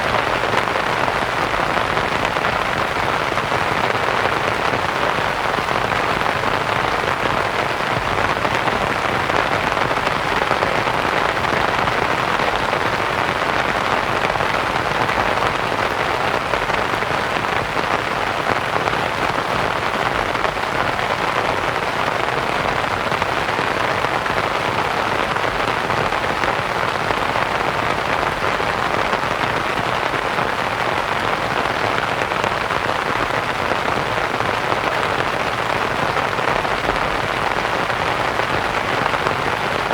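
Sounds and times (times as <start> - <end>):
rain pattering on a canvas tent: 0.0 - 39.9.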